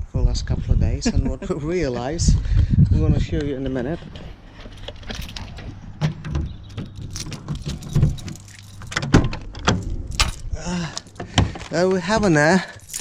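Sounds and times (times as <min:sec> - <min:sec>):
handling clicks and knocks: 0:03.6 - 0:13.0
light jingling: 0:04.6 - 0:05.9, 0:06.5 - 0:13.0.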